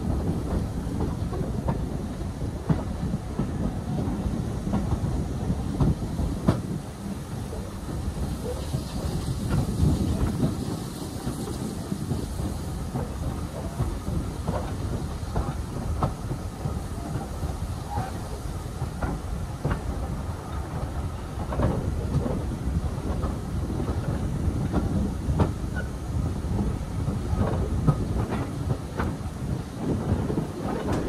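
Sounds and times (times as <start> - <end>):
train carriage rumbling: 0.0 - 31.0
wheels clicking over rail joints: 26.6 - 31.0.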